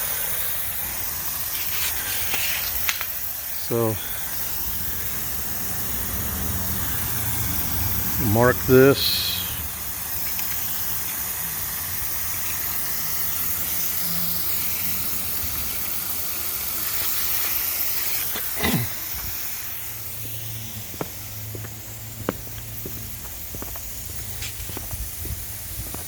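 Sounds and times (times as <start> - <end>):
irrigation water spraying: 0.0 - 26.0.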